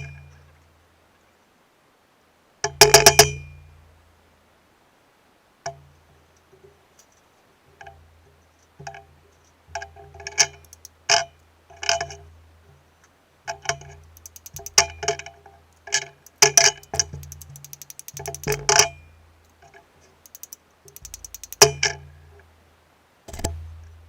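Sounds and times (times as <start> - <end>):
metal parts clinking: 14.1 - 14.9, 16.0 - 18.9, 20.3 - 21.7.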